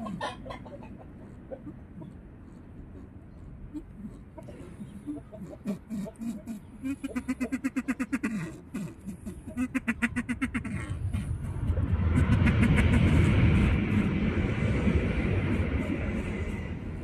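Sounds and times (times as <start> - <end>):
rushing rumble: 9.8 - 17.0.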